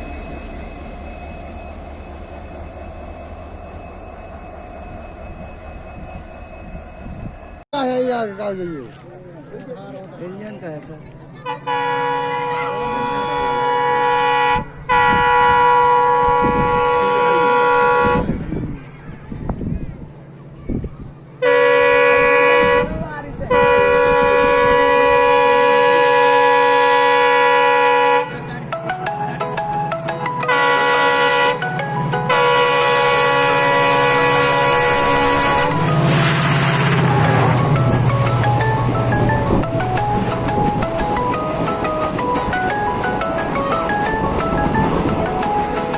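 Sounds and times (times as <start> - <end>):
train horn blasts: 11.4 - 18.5, 21.4 - 28.5, 30.4 - 42.3
rushing rumble: 33.3 - 45.9.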